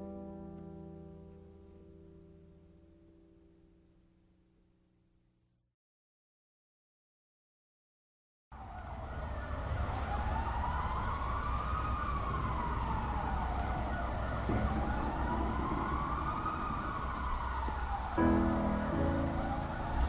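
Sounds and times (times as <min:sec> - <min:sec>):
siren wailing: 0:08.6 - 0:20.0
low rumble: 0:12.5 - 0:20.0.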